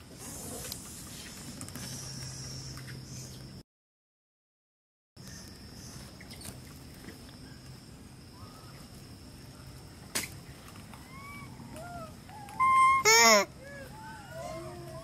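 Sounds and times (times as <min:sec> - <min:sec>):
faint short chirping calls: 0:11.0 - 0:14.6
high-pitched insect drone: 0:12.6 - 0:13.5.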